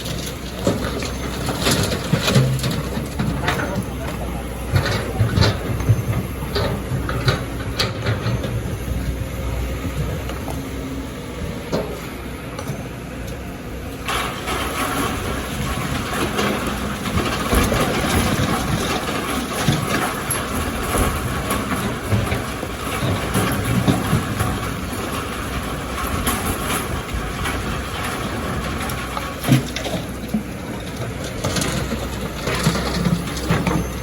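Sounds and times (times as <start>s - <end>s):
diesel engine running: 0.0s - 34.0s
rattling clatter: 14.1s - 34.0s.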